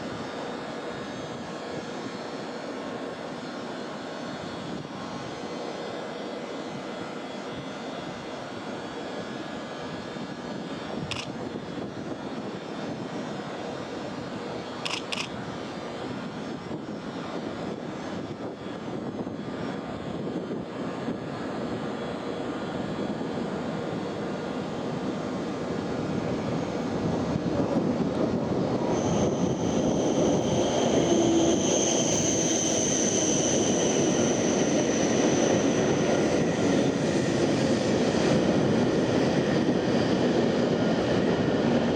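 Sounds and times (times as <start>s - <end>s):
high-speed train running: 0.0s - 41.9s
short clicks: 11.1s - 11.3s, 14.8s - 15.3s
high steady whine: 21.2s - 39.7s.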